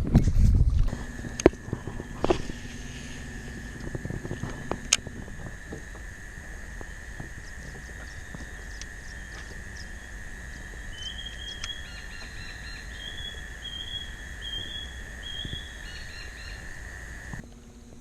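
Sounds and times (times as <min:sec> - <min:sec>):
low outdoor rumble: 0:00.0 - 0:18.0
high-pitched drone: 0:00.9 - 0:17.5.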